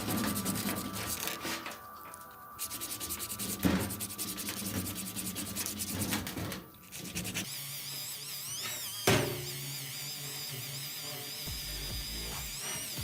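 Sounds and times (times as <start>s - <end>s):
sandpaper rubbing: 0.0s - 1.4s, 2.6s - 7.5s
wavering high tone: 0.0s - 7.0s.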